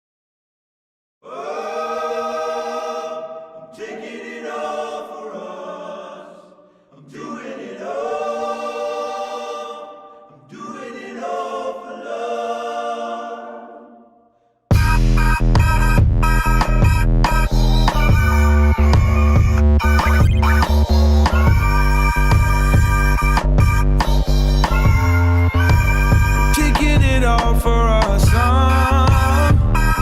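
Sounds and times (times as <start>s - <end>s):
choir singing held notes: 1.2s - 27.6s
electronic music with a beat: 14.7s - 30.0s.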